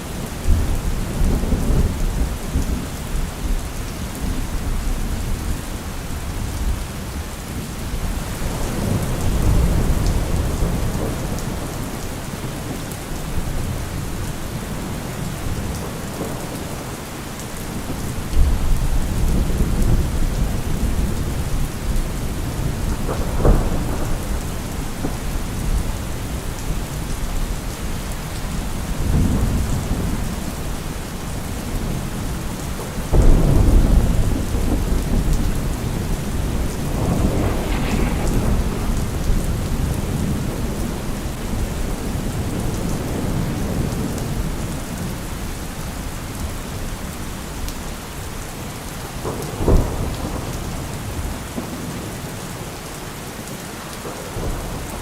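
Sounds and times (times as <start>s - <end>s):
heavy rain: 0.0s - 55.0s
thunder rumbling: 7.9s - 45.4s
thunder crack: 17.8s - 26.4s, 33.1s - 44.1s.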